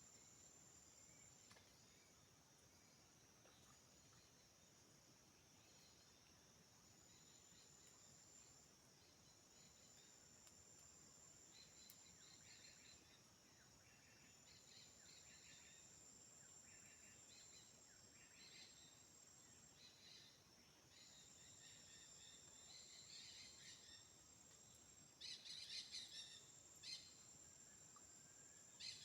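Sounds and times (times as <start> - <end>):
insect chirping calls: 0.0 - 29.0
insect drone: 0.0 - 29.0.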